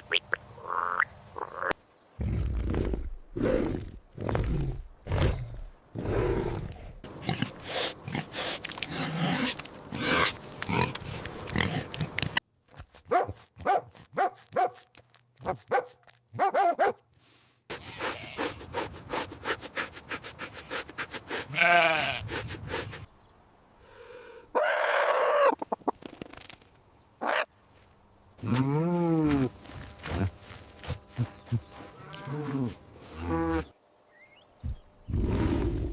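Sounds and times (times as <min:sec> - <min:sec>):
bleating: 0:17.7 - 0:18.6, 0:21.5 - 0:22.3, 0:32.0 - 0:33.7.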